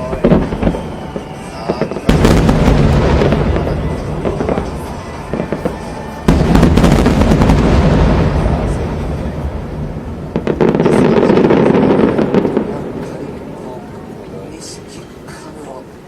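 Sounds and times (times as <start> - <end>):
fireworks bursting and crackling: 0.0 - 15.9.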